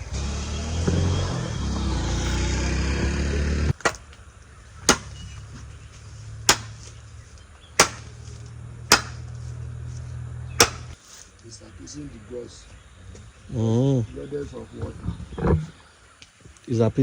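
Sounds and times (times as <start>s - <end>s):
tool chopping into wood: 3.7s - 4.2s, 4.8s - 5.4s, 6.4s - 7.0s, 7.8s - 9.4s, 10.6s - 11.0s.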